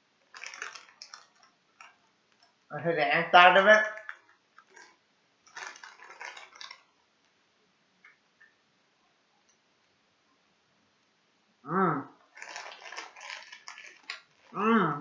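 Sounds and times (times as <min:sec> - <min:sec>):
wet chewing and smacking: 0:12.3 - 0:14.6.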